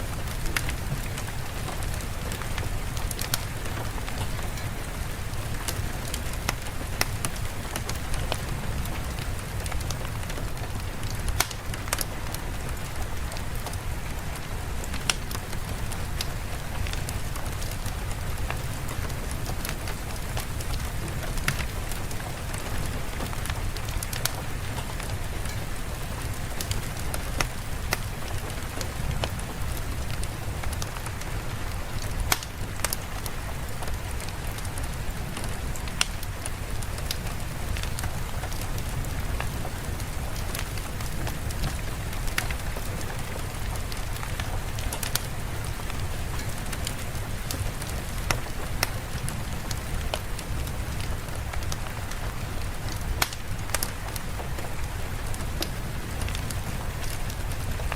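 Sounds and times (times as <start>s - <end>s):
steady rain falling: 0.0s - 57.9s
sharp ticks and pops: 11.3s - 12.1s, 32.2s - 33.9s, 52.9s - 54.7s.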